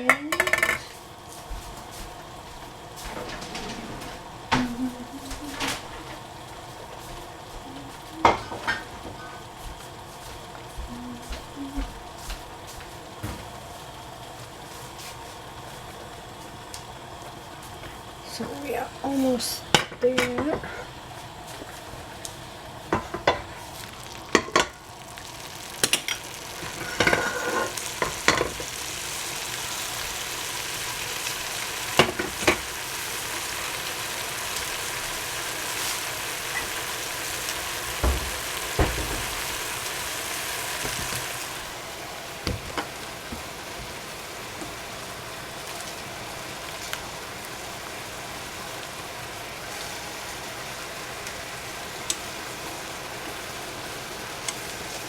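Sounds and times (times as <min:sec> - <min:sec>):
food sizzling in hot oil: 0:00.0 - 0:55.0
utensil scraping a pan: 0:26.6 - 0:28.6.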